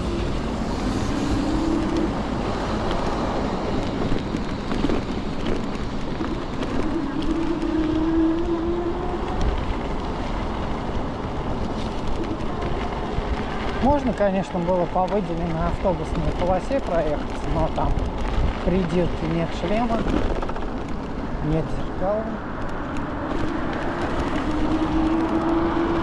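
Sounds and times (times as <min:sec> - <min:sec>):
electric scooter motor hum: 0:00.0 - 0:13.9, 0:22.4 - 0:26.0
road and wind noise: 0:00.0 - 0:26.0.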